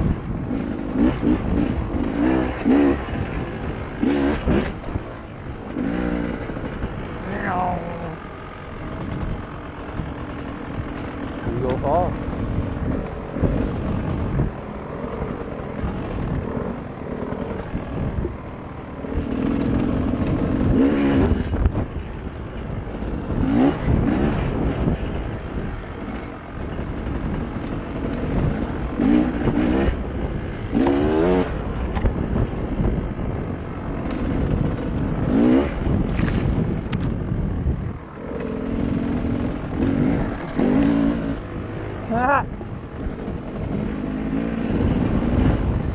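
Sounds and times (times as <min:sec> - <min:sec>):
dirt bike engine revving: 0:00.0 - 0:37.5, 0:38.1 - 0:45.9.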